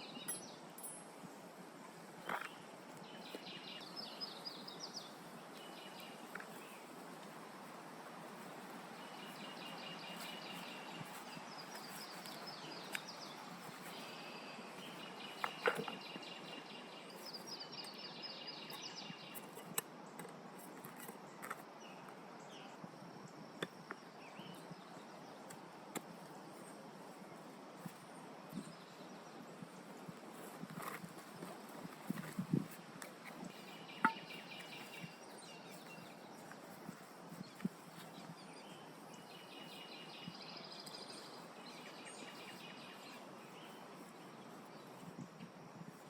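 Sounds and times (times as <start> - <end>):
background hiss: 0.0 - 46.0
birds singing high trills: 33.3 - 44.6.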